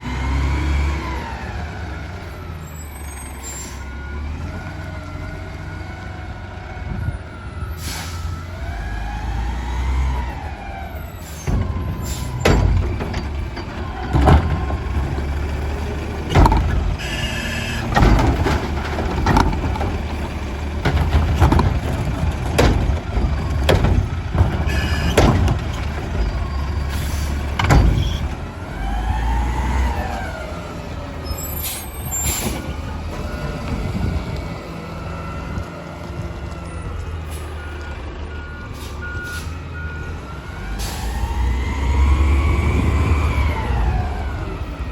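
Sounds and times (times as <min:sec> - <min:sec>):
loader hydraulic whine: 0:00.1 - 0:44.9
diesel engine running: 0:04.4 - 0:44.9
clanks and crashes of recyclables: 0:11.4 - 0:15.3, 0:16.2 - 0:28.4.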